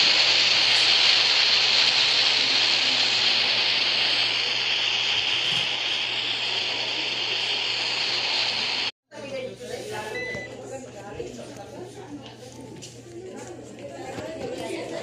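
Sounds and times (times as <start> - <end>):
turboprop engines roaring: 0.0 - 8.9.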